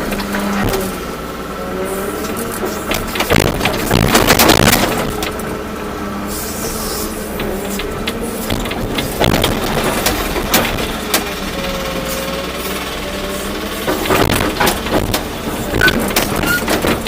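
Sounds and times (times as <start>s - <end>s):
excavator diesel drone: 0.0s - 17.0s
machine knocks and clanks: 2.3s - 5.5s, 7.2s - 17.0s.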